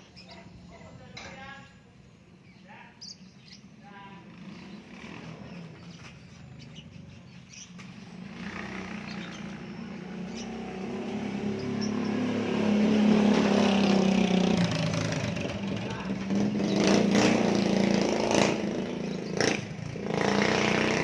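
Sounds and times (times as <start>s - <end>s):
vehicle engine running: 4.3s - 21.0s.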